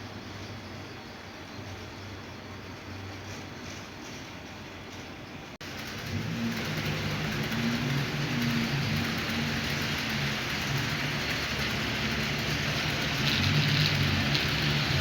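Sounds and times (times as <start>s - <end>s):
low wavering motor hum: 5.6s - 15.0s
model train wheels rattling on rail: 5.6s - 15.0s.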